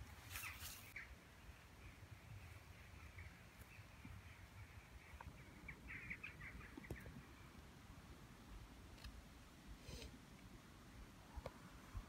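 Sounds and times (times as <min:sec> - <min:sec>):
faint small birds chirping: 0:00.0 - 0:07.7.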